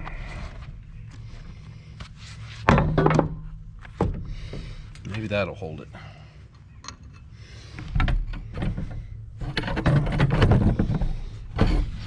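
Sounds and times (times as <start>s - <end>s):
objects knocking and scraping: 2.6s - 4.8s, 6.8s - 12.0s.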